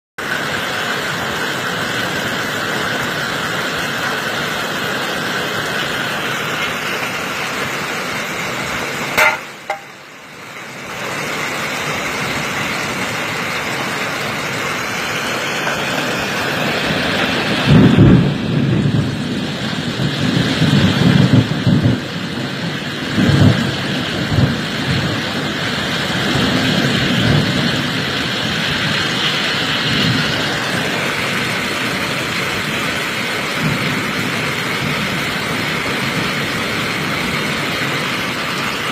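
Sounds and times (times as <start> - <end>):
hail and rain pelting: 0.2 - 38.9
sharp knock: 9.2 - 9.9.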